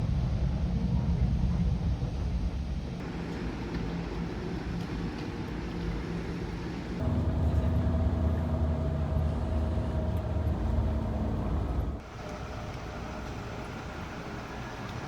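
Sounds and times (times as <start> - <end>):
vehicle engine humming: 6.9 - 15.0.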